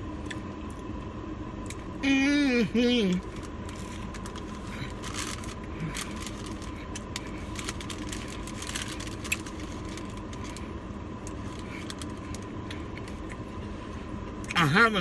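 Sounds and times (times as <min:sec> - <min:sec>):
steady background hum: 0:00.0 - 0:15.0
food wrappers rustling: 0:03.2 - 0:13.3.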